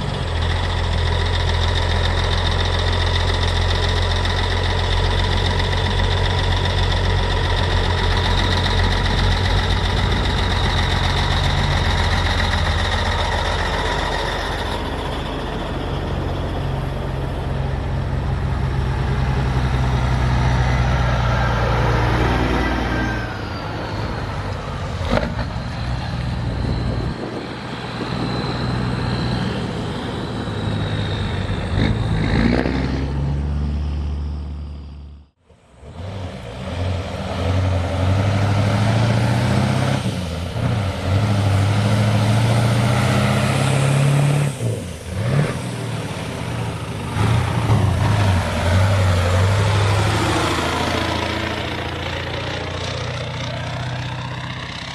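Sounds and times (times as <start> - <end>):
diesel truck engines running: 0.0 - 54.9.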